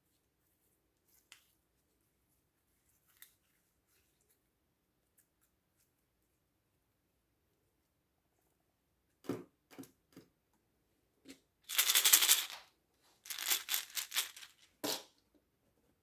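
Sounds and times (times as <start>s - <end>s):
small hard objects clicking and rattling: 11.7s - 12.7s, 13.3s - 14.7s.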